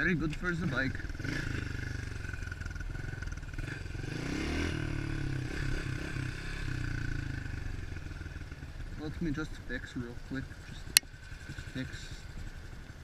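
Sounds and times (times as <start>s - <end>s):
motorbike engine revving: 0.0s - 13.0s.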